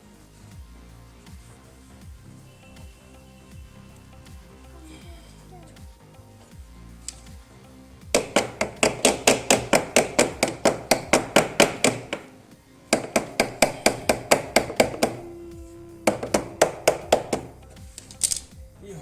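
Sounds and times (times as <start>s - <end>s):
rapid hammer taps: 8.1s - 18.5s.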